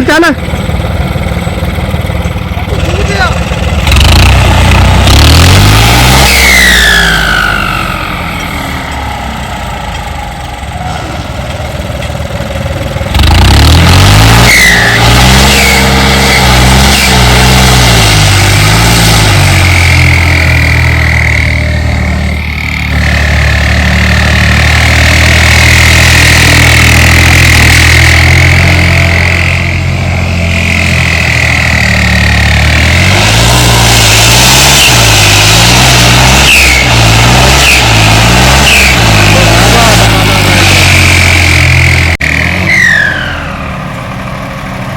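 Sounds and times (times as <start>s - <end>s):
tractor diesel engine working: 0.0s - 44.9s
high turbo whistle: 42.7s - 44.0s.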